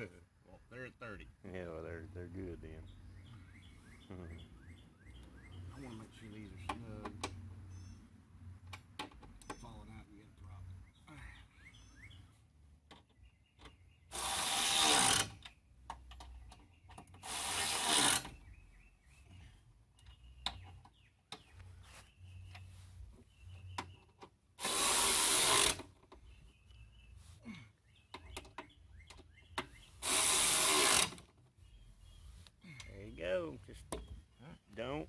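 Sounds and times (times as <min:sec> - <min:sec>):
power tool bursts: 0:14.1 - 0:15.4, 0:17.2 - 0:18.3, 0:24.6 - 0:25.9, 0:30.0 - 0:31.2.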